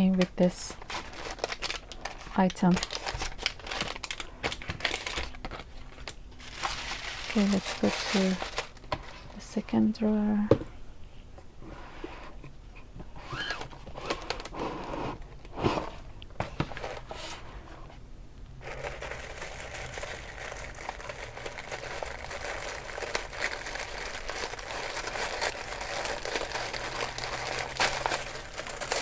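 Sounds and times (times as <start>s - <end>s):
packaging crinkling: 0.0s - 9.4s, 18.6s - 29.0s.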